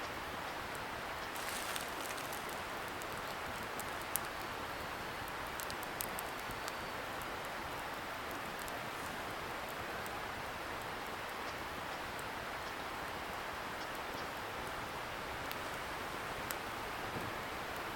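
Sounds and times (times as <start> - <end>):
bonfire crackling and popping: 0.7 - 17.9
river flowing: 0.9 - 5.7.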